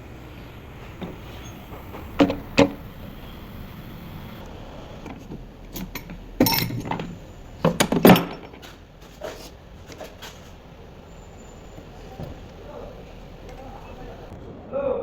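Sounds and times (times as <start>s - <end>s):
metal tools clicking: 5.0s - 8.7s
metal parts clattering: 5.0s - 10.5s.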